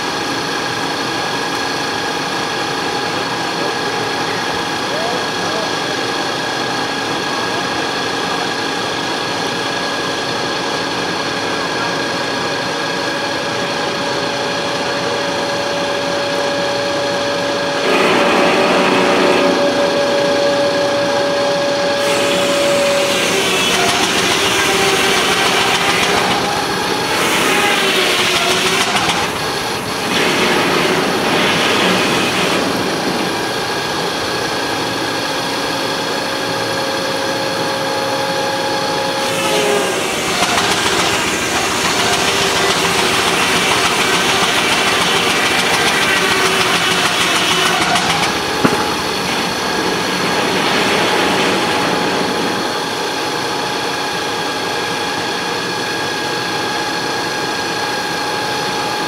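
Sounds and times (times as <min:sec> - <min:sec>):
sawmill saw ringing hum: 0:00.0 - 0:59.0
rough saw cutting noise: 0:11.6 - 0:34.0, 0:38.1 - 0:53.4.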